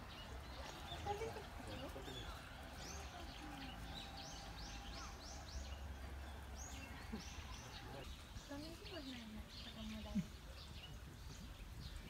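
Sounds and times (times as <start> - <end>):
songbird high chirps: 0.0 - 12.0.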